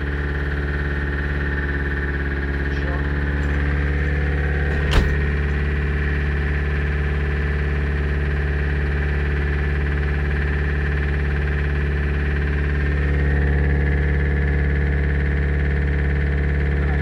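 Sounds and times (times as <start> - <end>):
van engine idling: 0.0 - 17.0.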